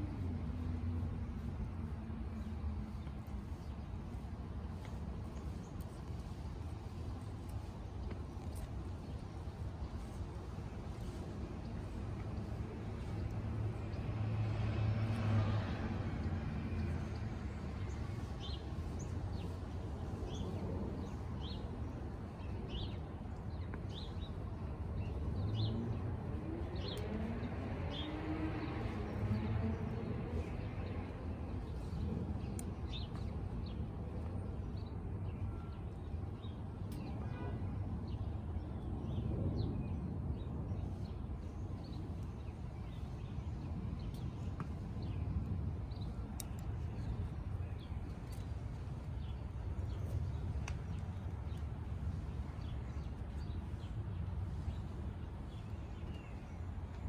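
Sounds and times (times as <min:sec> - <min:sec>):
low outdoor rumble: 0:00.0 - 0:57.0.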